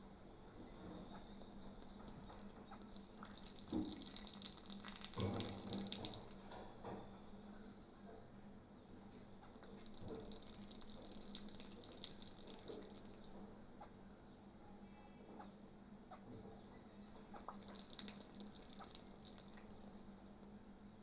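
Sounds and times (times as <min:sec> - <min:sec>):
bird splashing in water: 0:02.1 - 0:06.5, 0:09.5 - 0:13.3, 0:17.4 - 0:20.0.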